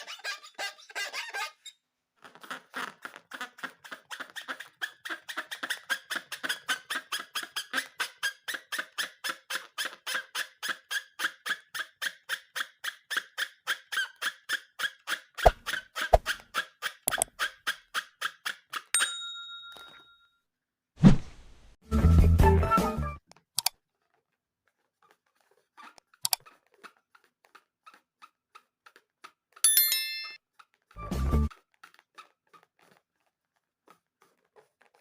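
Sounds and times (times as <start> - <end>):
rubbery squeaking: 0.0 - 18.9, 23.9 - 29.6, 30.5 - 35.0.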